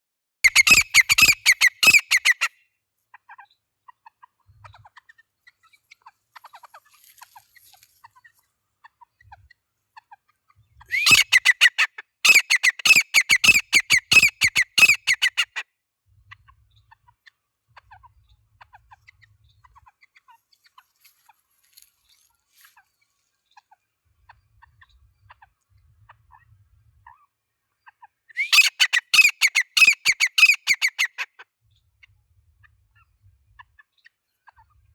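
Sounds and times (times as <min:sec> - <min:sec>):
francolin calling: 0:00.5 - 0:02.5, 0:10.9 - 0:11.6.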